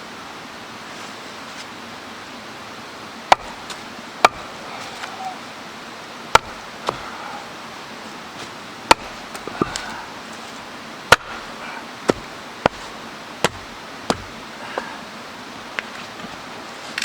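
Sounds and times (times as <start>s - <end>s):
mountain stream rushing: 0.0s - 17.0s
wood being chopped: 3.3s - 5.1s, 6.3s - 7.3s, 8.9s - 10.1s, 11.1s - 14.9s.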